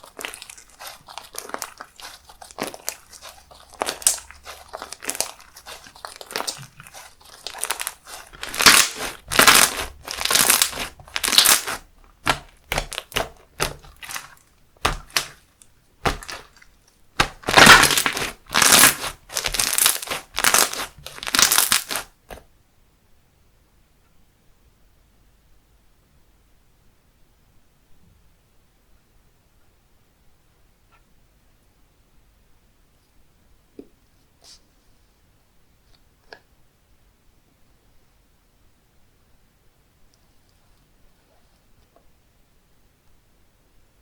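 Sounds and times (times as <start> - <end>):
slime being squished by hand: 0.0 - 22.4.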